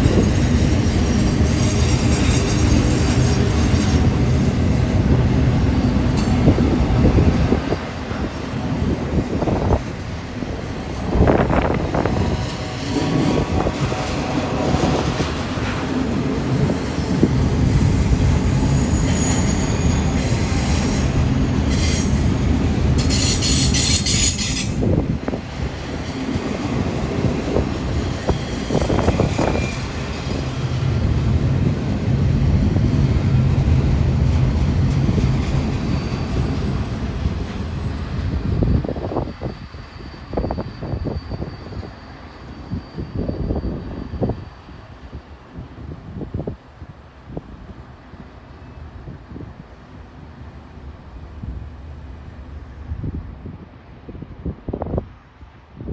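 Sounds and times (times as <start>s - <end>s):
freight train rumbling: 0.0s - 55.9s
high wheel squeal: 16.5s - 25.1s, 27.9s - 30.7s, 35.5s - 45.2s.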